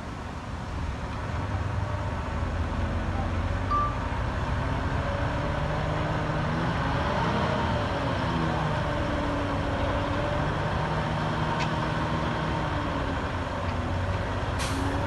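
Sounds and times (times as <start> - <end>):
heavy diesel engine under load: 0.0 - 15.0
short high beep: 3.7 - 4.1.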